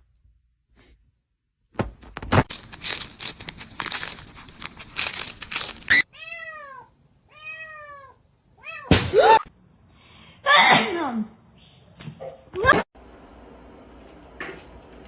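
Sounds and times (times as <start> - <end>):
rustling and crinkling: 1.8 - 6.0
cat meowing: 6.1 - 8.9.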